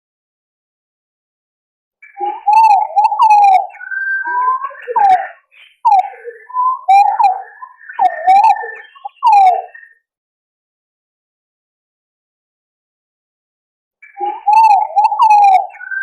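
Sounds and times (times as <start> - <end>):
pigeons whistling calls: 2.1 - 9.9, 14.0 - 16.0.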